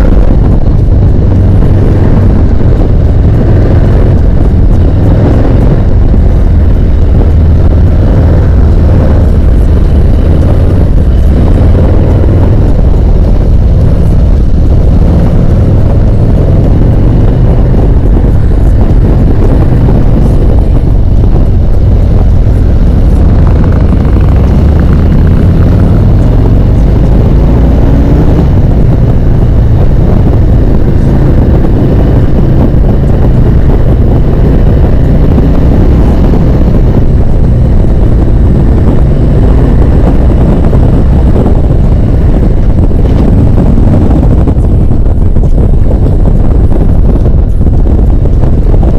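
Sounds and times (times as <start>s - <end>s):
motorcycle engine rumble: 0.0s - 48.9s
wind roar on microphone: 0.0s - 48.9s.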